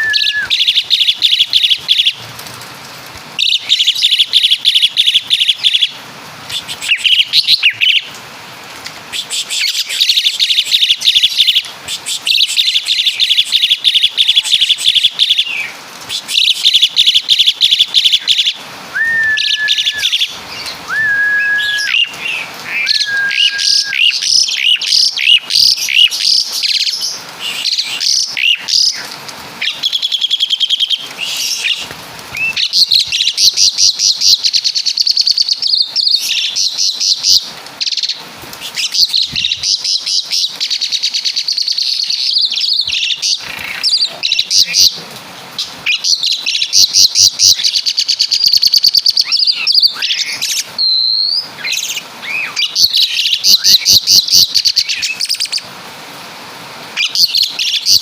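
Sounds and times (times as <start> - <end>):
clear level whistles: 0.0 - 0.8, 18.9 - 20.2, 20.9 - 22.1, 22.8 - 24.2
starling chattering song: 0.0 - 2.2, 3.4 - 8.1, 9.1 - 55.6.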